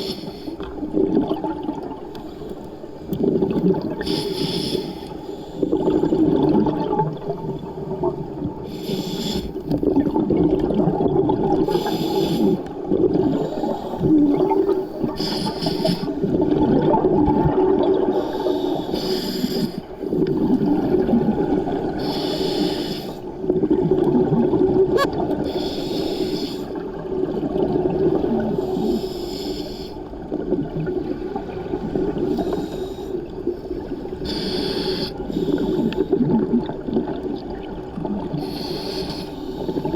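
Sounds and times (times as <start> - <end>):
bubbly gurgling exhalations: 3.1 - 4.3, 5.7 - 8.6, 9.8 - 18.8, 20.0 - 22.0, 23.4 - 25.5, 33.4 - 38.8
regulator hissing inhalation: 4.0 - 5.2, 15.0 - 16.2, 18.4 - 19.8, 22.0 - 23.2, 34.3 - 36.0, 38.4 - 39.7.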